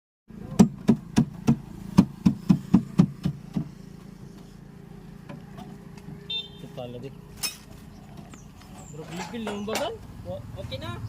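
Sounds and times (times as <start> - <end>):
steady low hum: 0.3 - 9.2.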